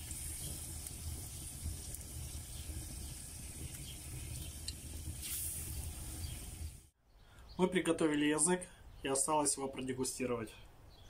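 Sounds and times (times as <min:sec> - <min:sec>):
food sizzling in hot oil: 0:00.0 - 0:07.0.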